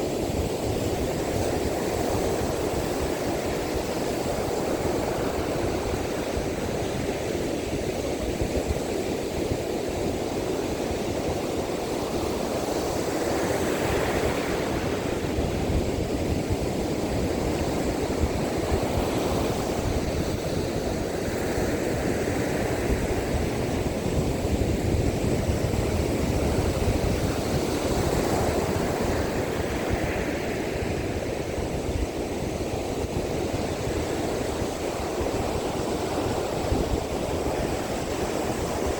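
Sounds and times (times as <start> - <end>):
waves breaking on a beach: 0.0 - 38.9
wind buffeting microphone: 0.0 - 38.9.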